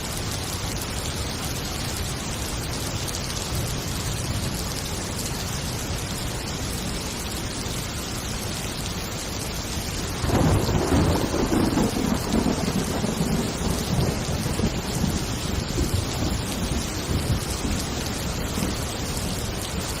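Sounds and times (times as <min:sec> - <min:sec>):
heavy rain: 0:00.0 - 0:20.0
rolling thunder: 0:10.0 - 0:19.4.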